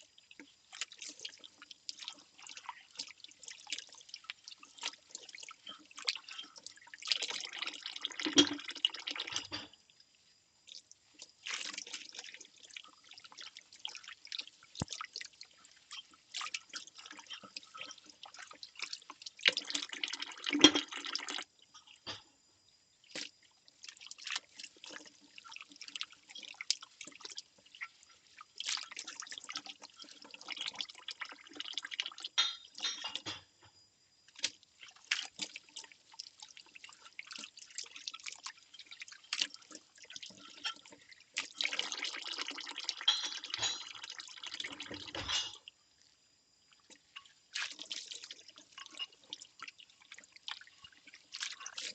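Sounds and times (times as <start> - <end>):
water splashing in a sink: 0.0 - 51.9
ceramic bowls clinking: 32.4 - 33.5, 43.0 - 44.0, 45.1 - 45.6.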